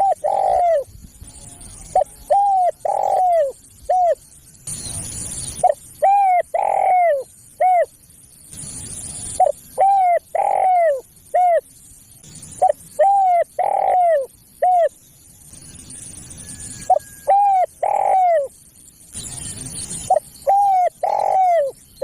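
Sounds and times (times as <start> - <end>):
dove cooing: 0.0 - 0.9, 1.5 - 4.2, 5.6 - 7.9, 9.4 - 11.6, 12.6 - 14.9, 16.9 - 18.5, 20.1 - 21.8.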